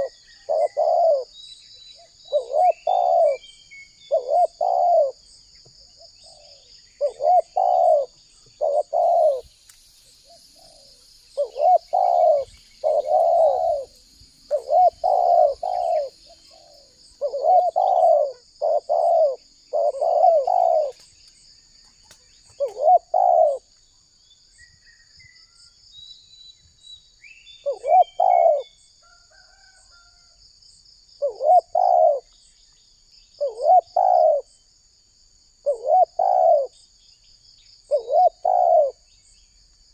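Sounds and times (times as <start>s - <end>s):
dove cooing: 0.0s - 1.4s, 2.0s - 5.3s, 6.0s - 9.5s, 10.2s - 21.1s, 22.6s - 23.7s, 27.6s - 28.7s, 31.2s - 32.3s, 33.4s - 34.5s, 35.6s - 36.8s, 37.9s - 39.1s
high insect drone: 0.0s - 26.0s, 27.0s - 39.9s
small bird chirps: 0.0s - 30.2s.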